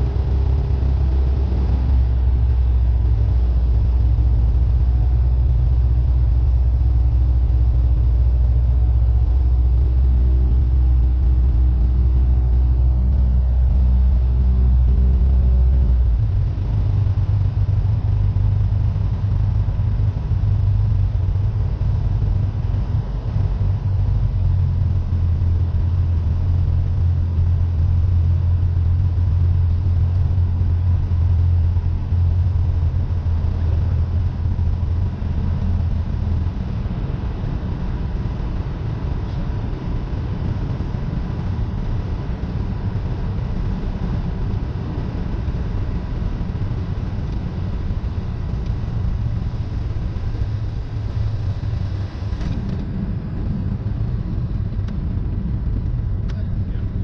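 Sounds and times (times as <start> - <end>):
airplane engine droning in cabin: 0.0 - 57.0.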